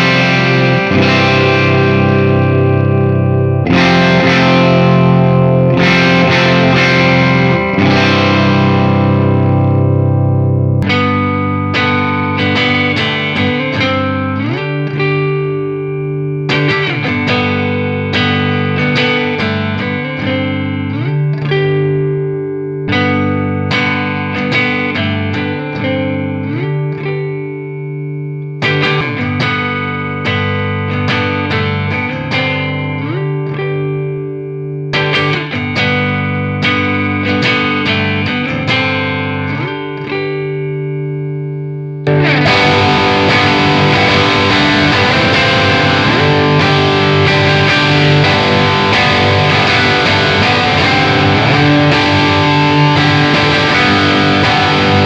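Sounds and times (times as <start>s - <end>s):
clean electric guitar picking: 0.0s - 55.0s
distorted electric guitar: 0.0s - 55.0s.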